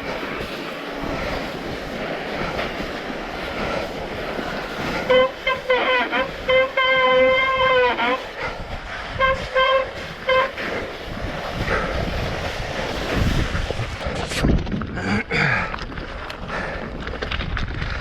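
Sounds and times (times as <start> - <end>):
mountain bike riding on trail: 0.0 - 18.0
horn tooting: 4.8 - 11.0.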